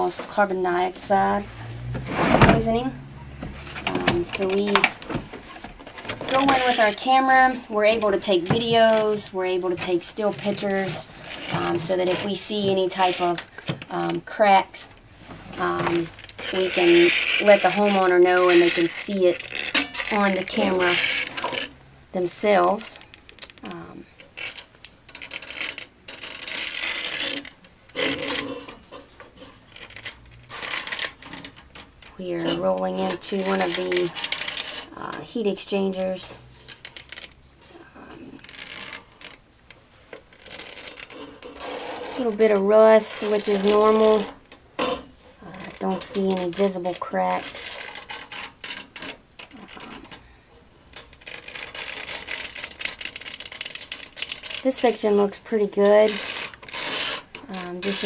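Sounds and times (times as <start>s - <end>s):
rasping metal scrape: 1.3s - 4.8s
metal clicking and rattling: 2.6s - 13.9s.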